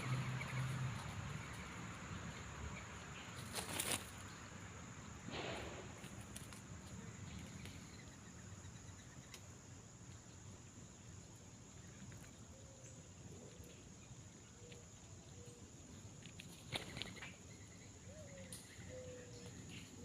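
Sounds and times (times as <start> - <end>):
faint bird calls: 16.7 - 20.0.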